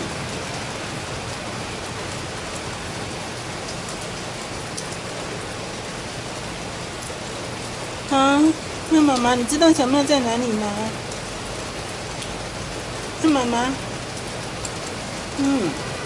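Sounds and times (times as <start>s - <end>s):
rain on stone paving: 0.0s - 16.0s
water drips ticking: 3.5s - 5.1s, 8.1s - 15.9s.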